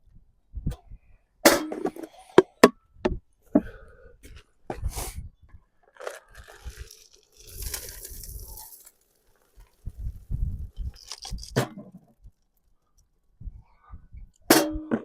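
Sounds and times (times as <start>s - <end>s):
seeds and corn clattering into feeder: 5.9s - 12.2s.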